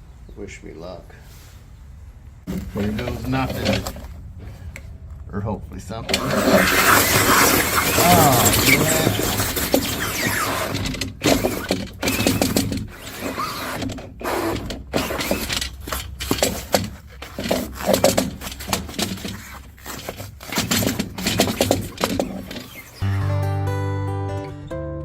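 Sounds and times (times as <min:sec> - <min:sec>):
power tool grinding foam: 0:06.1 - 0:23.0.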